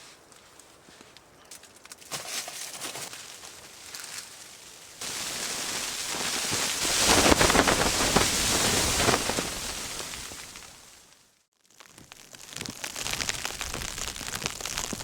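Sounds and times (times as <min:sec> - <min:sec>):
faint crunches: 0:00.2 - 0:11.1
blizzard wind hissing: 0:05.0 - 0:11.2.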